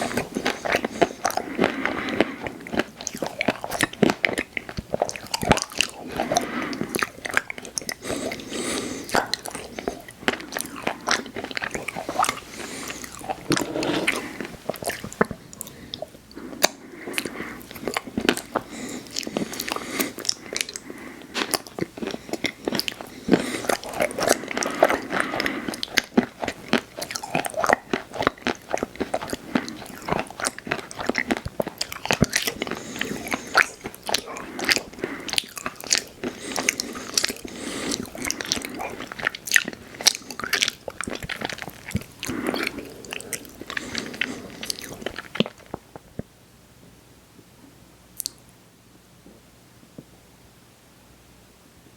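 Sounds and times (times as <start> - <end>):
chewing and crunching food: 0.0 - 46.3.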